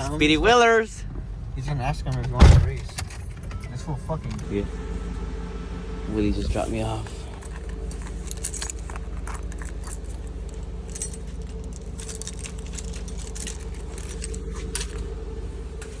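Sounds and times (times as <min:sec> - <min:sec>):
car engine idling: 0:00.0 - 0:16.0
light clicks and rattles: 0:07.3 - 0:15.1.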